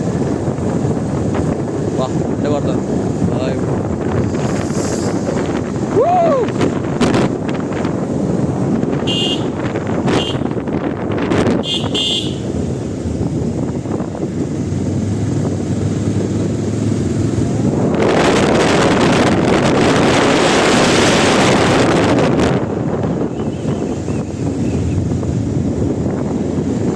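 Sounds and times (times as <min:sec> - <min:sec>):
road vehicle running: 0:00.0 - 0:26.9
wind noise on microphone: 0:00.0 - 0:26.9
short high horn toots: 0:09.1 - 0:10.5.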